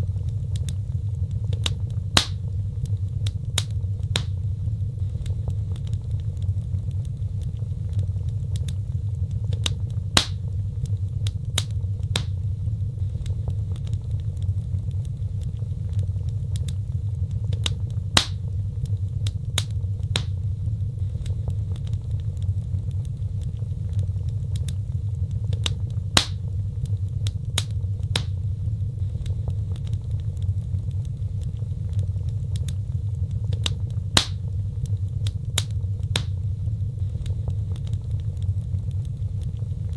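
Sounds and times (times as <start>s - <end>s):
fire crackles and snaps: 0.0s - 39.9s
fire rumbling: 0.0s - 39.9s
loud fire pop: 2.2s - 2.4s, 10.2s - 10.4s, 18.2s - 18.4s, 26.2s - 26.4s, 34.2s - 34.4s.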